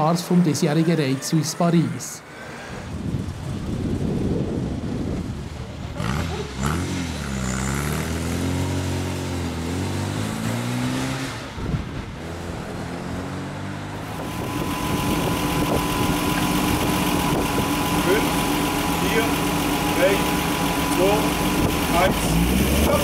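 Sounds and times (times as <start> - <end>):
car engine revving: 3.2 - 23.0
car engine idling: 13.8 - 23.0.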